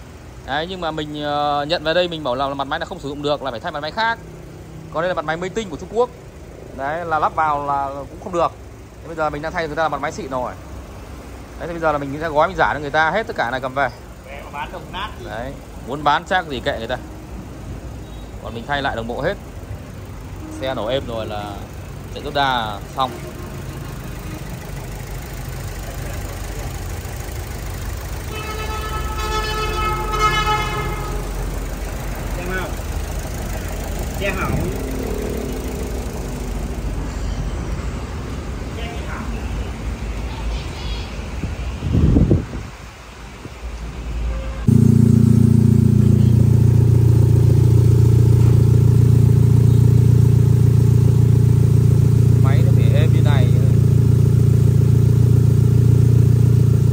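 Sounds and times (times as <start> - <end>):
car engine idling: 0.0 - 40.0, 44.6 - 56.9
steady horn-like tone: 22.8 - 24.5, 28.3 - 31.6, 44.3 - 47.4.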